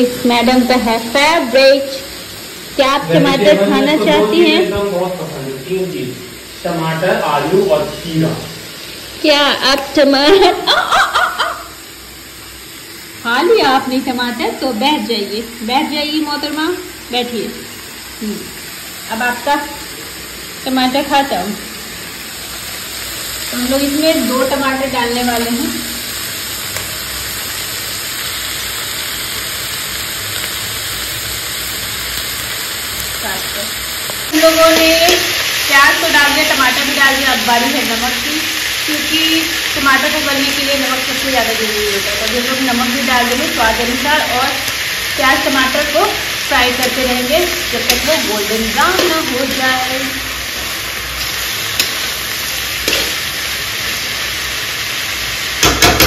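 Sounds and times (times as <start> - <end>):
vegetables sizzling in oil: 0.0 - 56.0
spatula knocking on pan: 55.6 - 56.0.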